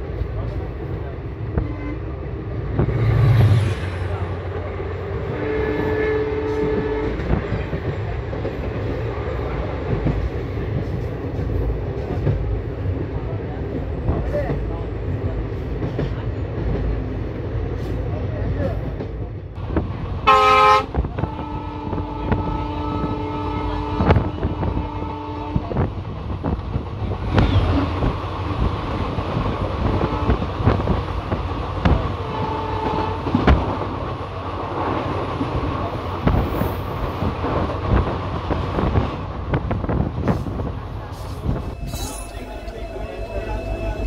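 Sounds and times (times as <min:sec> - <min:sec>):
train rushing past: 0:00.0 - 0:44.0
locomotive horn: 0:05.2 - 0:07.4, 0:20.2 - 0:25.8, 0:29.8 - 0:30.6, 0:32.2 - 0:33.6
train wheels clacking on rails: 0:06.2 - 0:23.2.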